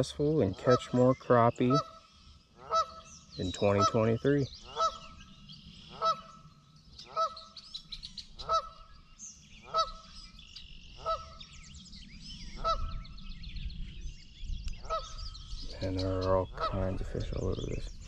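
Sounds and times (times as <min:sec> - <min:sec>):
bird honking: 0:00.0 - 0:07.6, 0:08.2 - 0:10.2, 0:10.9 - 0:11.5, 0:12.5 - 0:13.1, 0:14.8 - 0:15.3, 0:16.4 - 0:17.2
songbirds chirping: 0:00.0 - 0:18.0.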